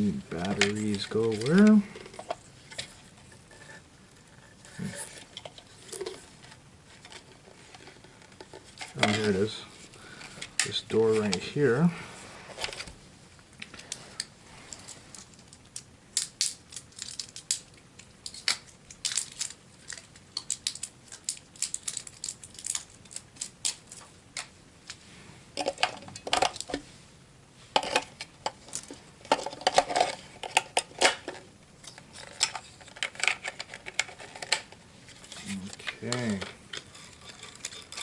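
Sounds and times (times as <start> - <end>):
plastic and metal parts rattling: 0.4 - 9.5, 25.6 - 26.8, 27.8 - 38.0.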